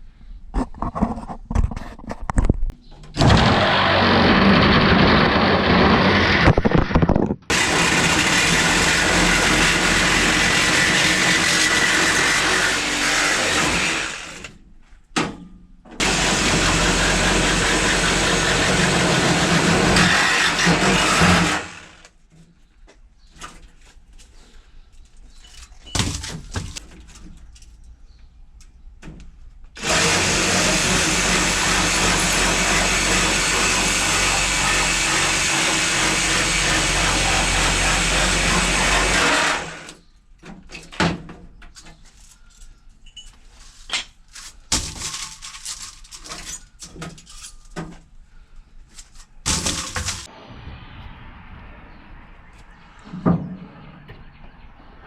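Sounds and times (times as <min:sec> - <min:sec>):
loud motor running: 0:03.2 - 0:06.6, 0:07.5 - 0:14.5, 0:16.0 - 0:22.1, 0:29.8 - 0:39.9.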